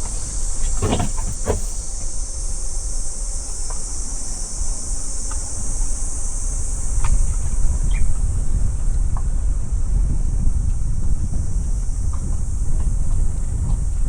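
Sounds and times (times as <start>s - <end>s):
car driving on road: 0.0s - 2.7s
insects chorus: 0.0s - 14.0s.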